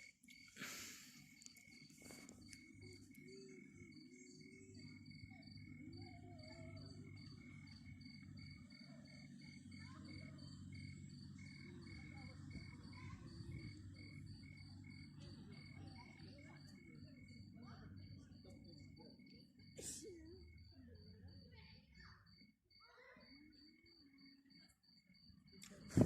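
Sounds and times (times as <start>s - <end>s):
cricket chirping: 0.0s - 26.0s.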